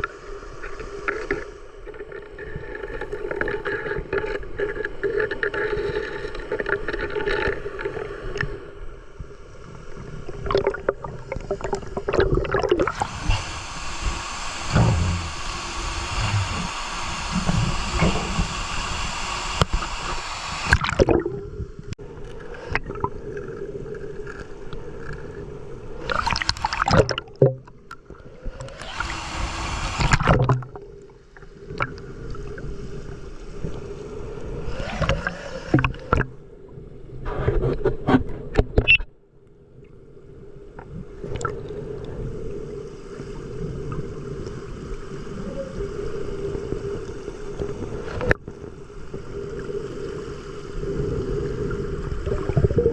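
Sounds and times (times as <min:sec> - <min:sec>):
rushing water bursts: 0:10.3 - 0:21.6, 0:26.0 - 0:27.4, 0:28.4 - 0:31.9
steady low hum: 0:12.8 - 0:22.0.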